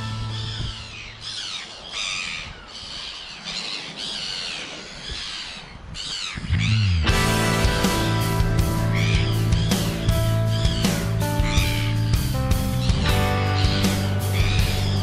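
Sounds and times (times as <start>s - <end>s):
birds calling: 0.0s - 15.0s
music with heavy beat: 7.1s - 15.0s.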